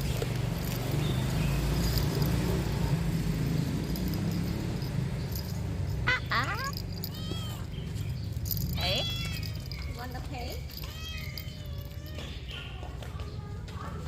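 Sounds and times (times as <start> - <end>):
low outdoor rumble: 0.0 - 12.1
cat meowing: 6.1 - 7.7, 8.8 - 9.7, 10.7 - 12.4.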